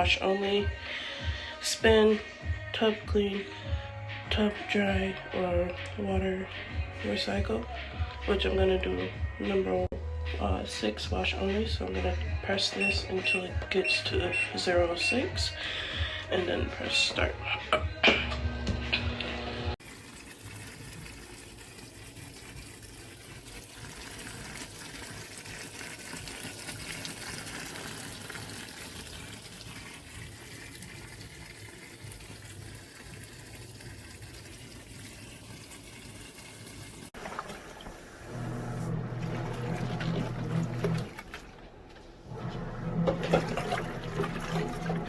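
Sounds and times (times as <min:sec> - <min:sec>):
washing machine motor humming: 0:12.4 - 0:15.6, 0:18.1 - 0:45.0
water churning in tub: 0:19.8 - 0:45.0.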